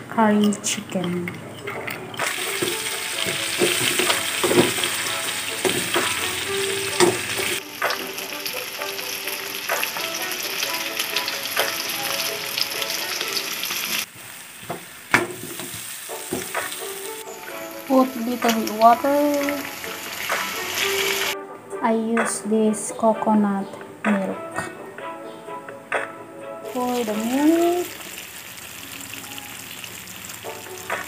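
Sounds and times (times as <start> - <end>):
food sizzling in a pan: 1.6 - 21.4, 26.7 - 31.0.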